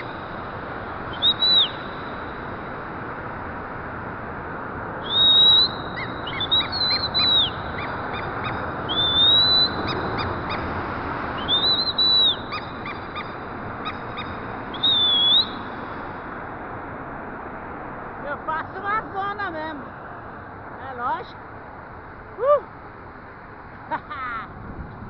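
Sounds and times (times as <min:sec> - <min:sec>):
parrot whistling: 0:01.1 - 0:02.0, 0:05.0 - 0:10.3, 0:11.4 - 0:15.6.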